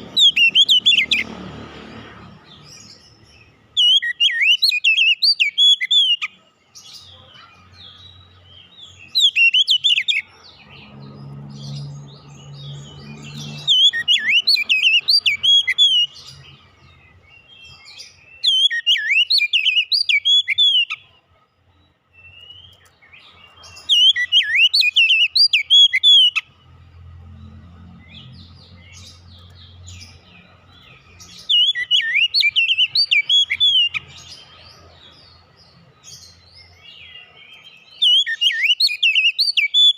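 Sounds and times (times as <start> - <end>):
bird whistles and chatter: 0.0 - 1.3, 3.8 - 8.2, 8.9 - 11.0, 11.6 - 16.6, 17.7 - 21.1, 22.2 - 26.5, 30.8 - 34.5, 37.0 - 39.9.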